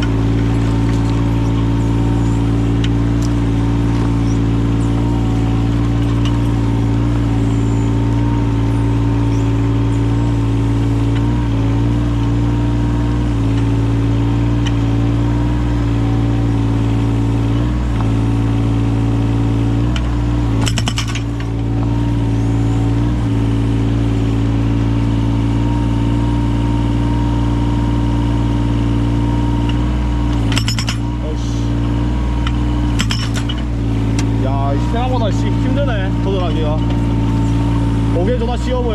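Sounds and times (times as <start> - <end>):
excavator diesel engine running: 0.0 - 38.9
rattle of sharp cracks: 19.9 - 21.7.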